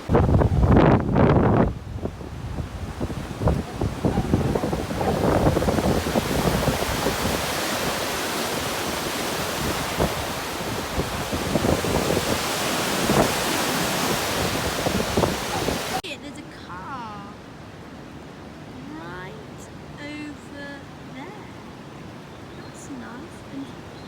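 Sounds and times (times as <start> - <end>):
wind buffeting microphone: 0.0 - 16.0
floodwater rushing: 0.0 - 24.0.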